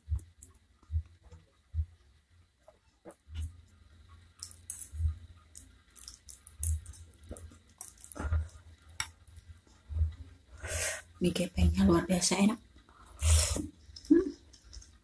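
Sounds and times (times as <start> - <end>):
soft low thumps: 0.9 - 2.2.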